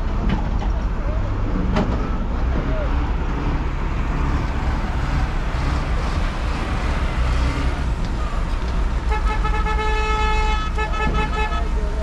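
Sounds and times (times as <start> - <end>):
road traffic rumble: 0.0 - 12.0
vehicle horn: 9.1 - 11.8.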